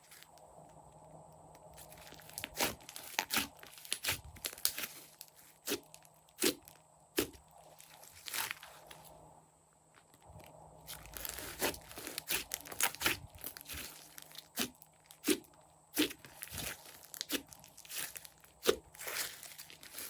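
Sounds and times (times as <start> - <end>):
slime squished by hand: 2.0 - 7.4, 11.2 - 20.0.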